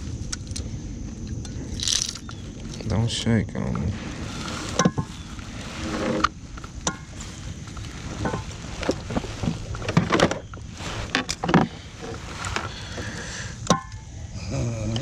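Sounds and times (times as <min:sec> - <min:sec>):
steady low rumble: 0:00.0 - 0:15.0
knocks and clicks in a boat: 0:08.2 - 0:14.0.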